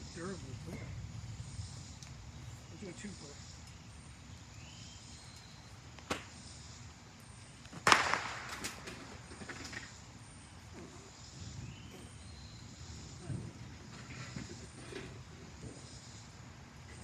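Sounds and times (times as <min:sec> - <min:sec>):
small cracks: 0:07.6 - 0:10.0
firework bang: 0:07.8 - 0:09.9.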